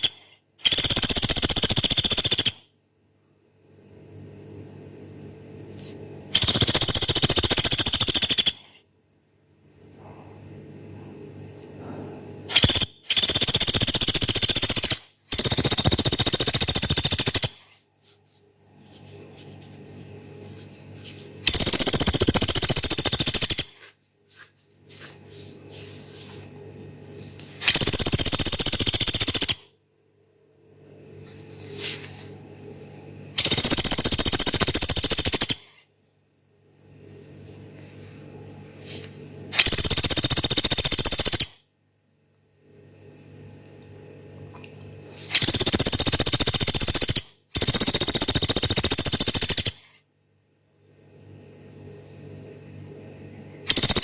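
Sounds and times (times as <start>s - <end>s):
woodpecker rattling calls: 0.0s - 2.6s, 6.4s - 8.7s, 12.5s - 17.7s, 21.5s - 23.8s, 27.6s - 29.6s, 33.4s - 35.7s, 39.6s - 41.5s, 45.4s - 49.8s, 53.7s - 54.0s.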